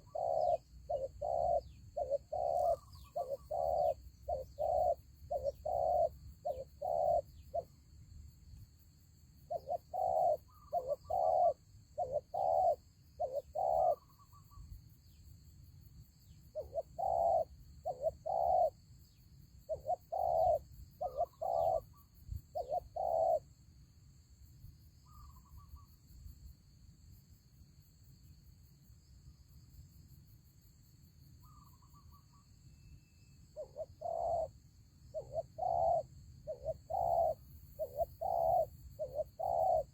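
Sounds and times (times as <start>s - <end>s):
doves cooing: 0.0s - 7.6s, 9.5s - 14.2s, 16.6s - 18.8s, 19.7s - 21.9s, 22.5s - 23.4s, 33.6s - 39.9s.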